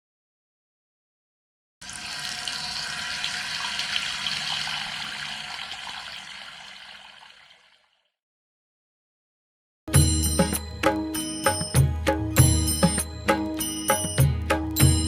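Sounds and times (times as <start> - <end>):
tap water running into sink: 1.8 - 8.0.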